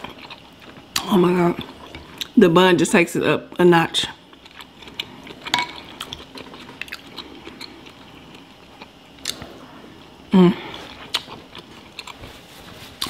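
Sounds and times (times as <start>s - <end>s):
wet chewing with mouth clicks: 0.0s - 2.4s, 4.3s - 9.5s, 10.6s - 13.0s
person humming: 10.3s - 10.9s.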